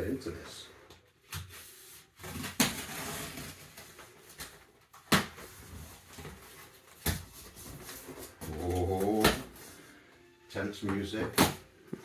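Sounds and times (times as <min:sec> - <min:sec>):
cardboard and packaging rustling: 0:01.0 - 0:10.0.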